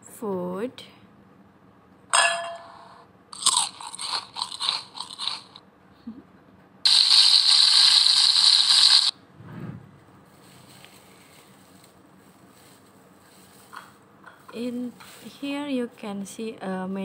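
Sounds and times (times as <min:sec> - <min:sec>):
glass clink: 0:02.1 - 0:02.8
crunchy bites: 0:03.4 - 0:05.6, 0:06.9 - 0:09.1
steady hiss: 0:06.9 - 0:09.1.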